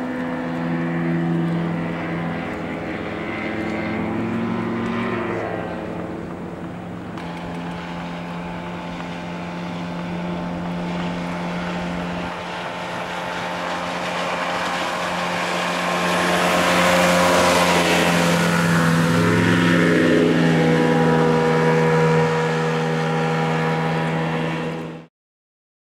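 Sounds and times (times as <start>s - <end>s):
water rushing: 0.0s - 25.0s
motorboat engine running: 0.0s - 25.1s
wind: 0.0s - 25.1s.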